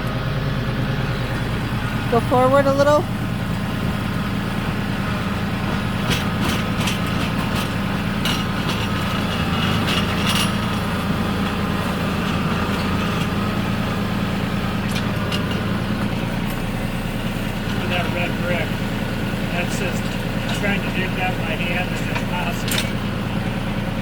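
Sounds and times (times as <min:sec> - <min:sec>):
tractor engine running: 0:00.0 - 0:24.0
sharp clicks and knocks: 0:22.1 - 0:23.0.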